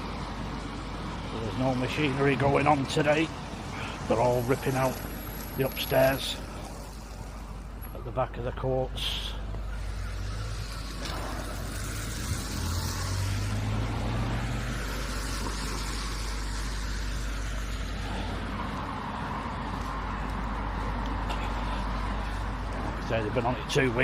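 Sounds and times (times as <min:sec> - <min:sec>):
cars passing: 0:00.0 - 0:24.0
low engine hum: 0:09.1 - 0:24.0.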